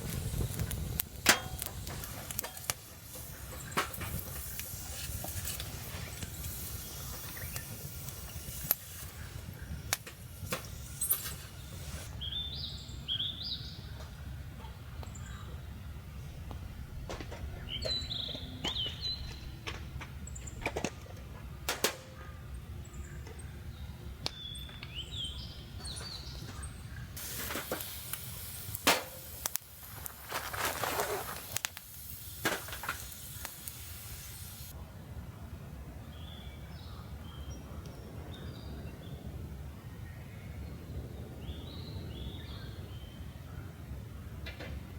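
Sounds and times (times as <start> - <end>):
sharp cracks and clicks: 0.0 - 9.2, 9.9 - 11.4, 27.2 - 33.9
small birds chirping: 3.1 - 14.2, 17.5 - 19.6, 22.4 - 27.2
rustling handling noise: 25.8 - 33.8.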